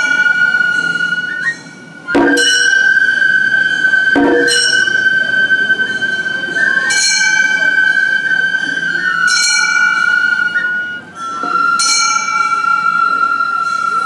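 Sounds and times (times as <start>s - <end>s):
bamboo flute high note: 0.0s - 14.0s
hand gong struck: 2.1s - 3.0s, 4.2s - 5.1s.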